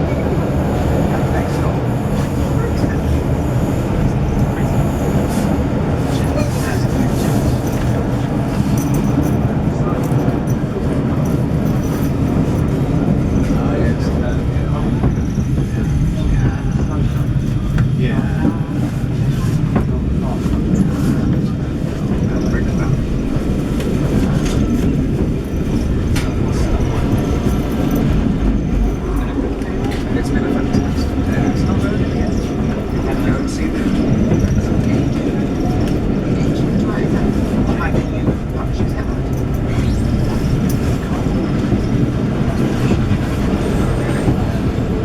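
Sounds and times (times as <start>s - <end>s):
train carriage rumbling on track: 0.0s - 45.0s.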